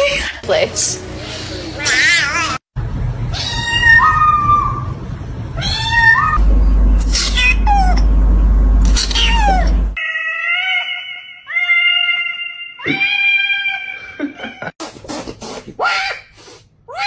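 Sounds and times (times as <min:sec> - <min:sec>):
cats meowing and yowling: 0:03.3 - 0:05.0, 0:05.6 - 0:06.4, 0:09.0 - 0:14.7.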